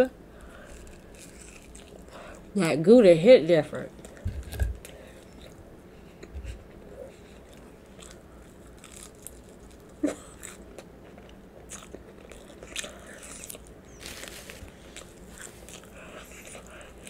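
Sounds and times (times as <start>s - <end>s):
person chewing crispy fries: 0.4s - 2.5s, 7.1s - 17.0s.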